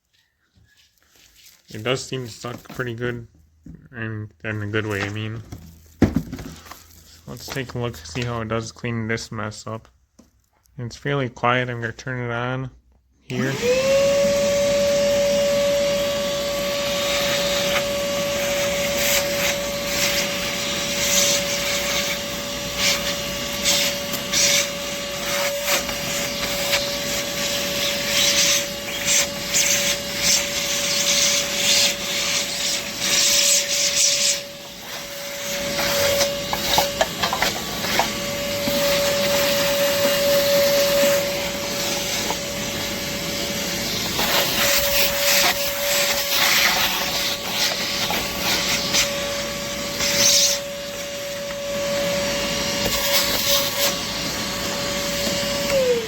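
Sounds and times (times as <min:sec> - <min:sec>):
shop vacuum motor whine: 0:13.3 - 0:56.0
debris rattling up vacuum hose: 0:13.5 - 0:56.0.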